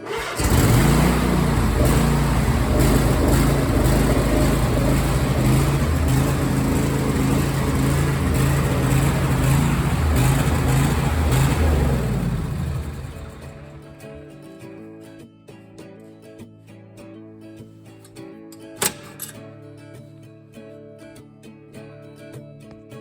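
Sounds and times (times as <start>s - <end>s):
riding mower engine running: 0.0s - 14.4s.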